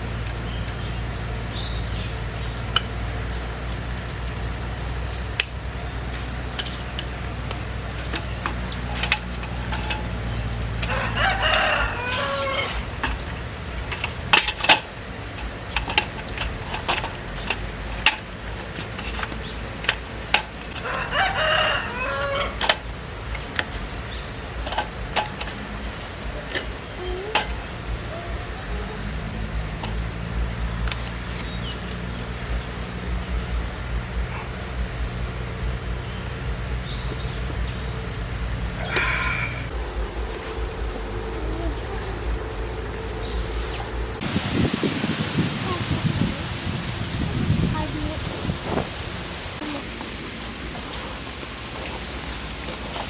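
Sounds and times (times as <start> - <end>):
low steady hum: 0.0 - 53.0
raindrops tapping: 0.0 - 53.0
rooster crowing: 9.8 - 13.2, 20.8 - 22.8, 38.5 - 44.2.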